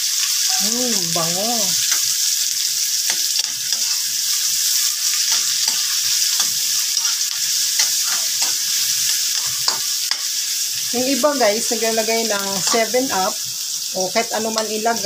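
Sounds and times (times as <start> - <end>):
onions sizzling in hot oil: 0.0 - 15.0
metal ladle scraping a wok: 3.1 - 10.4.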